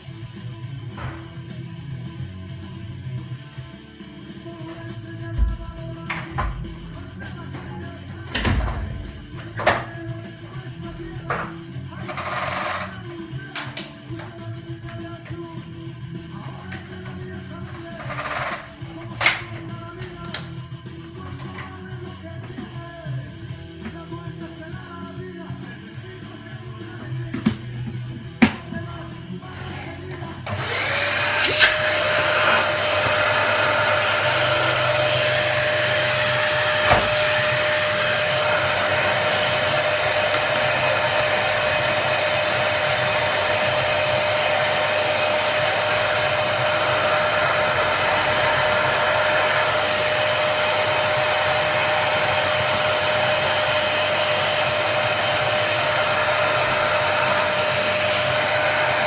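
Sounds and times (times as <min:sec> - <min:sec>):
vacuum motor whining: 0:11.0 - 0:13.0, 0:29.6 - 0:59.0.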